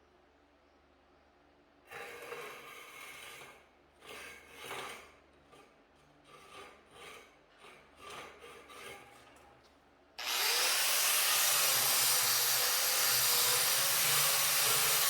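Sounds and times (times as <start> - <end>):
hand tool rasping rough surface: 10.2 - 15.0.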